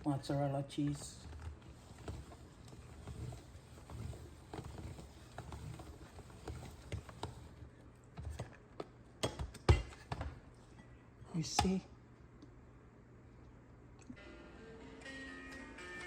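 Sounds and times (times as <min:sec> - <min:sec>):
cheese grating on hand grater: 0:01.0 - 0:07.6.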